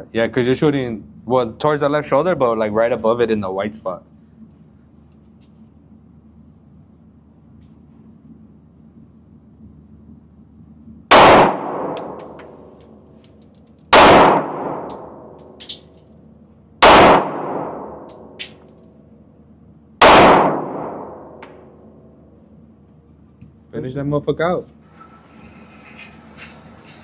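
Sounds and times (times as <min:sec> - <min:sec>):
handgun shots echoing: 0:11.1 - 0:12.6, 0:13.9 - 0:15.9, 0:16.8 - 0:18.7, 0:20.0 - 0:21.7
light metallic clinks: 0:12.0 - 0:13.9, 0:14.9 - 0:16.3, 0:18.1 - 0:18.9.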